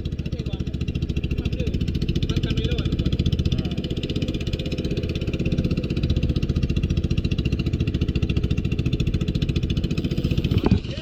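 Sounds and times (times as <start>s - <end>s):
boat engine pulsing: 0.0s - 11.0s.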